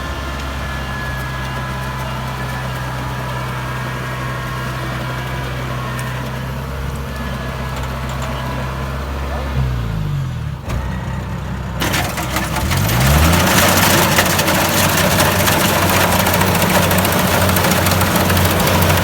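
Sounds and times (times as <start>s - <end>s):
combine harvester diesel engine: 0.0s - 19.0s
loud even mechanical rush: 11.8s - 19.0s.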